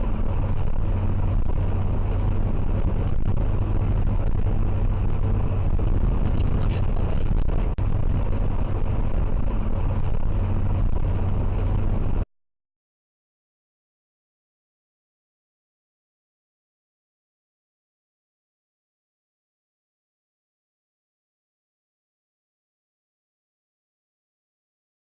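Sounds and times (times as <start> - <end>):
car engine and road rumble: 0.0 - 12.3.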